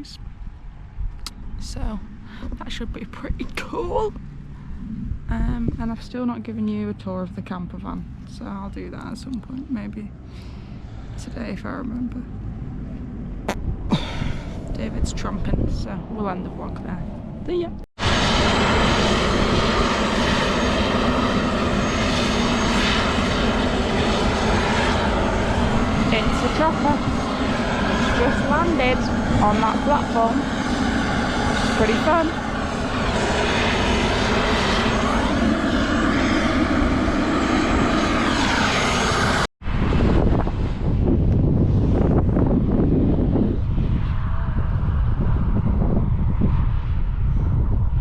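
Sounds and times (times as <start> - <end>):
helicopter engine and rotor: 17.5 - 43.8.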